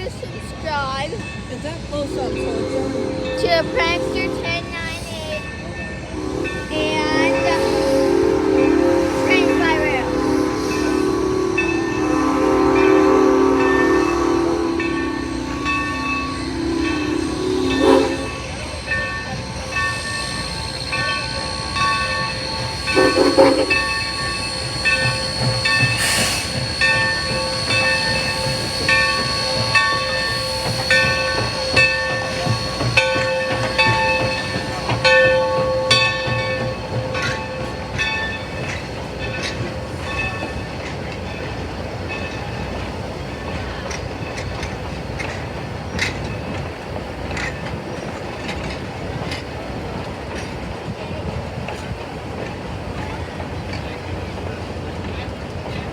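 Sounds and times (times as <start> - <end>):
rail clicks: 0.0 - 55.9
train rumbling on rails: 0.0 - 55.9
high metallic squealing: 1.2 - 41.5.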